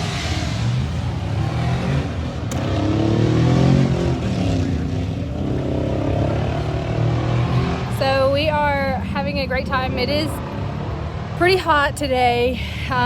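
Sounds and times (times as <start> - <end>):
car engine revving: 0.0 - 11.9.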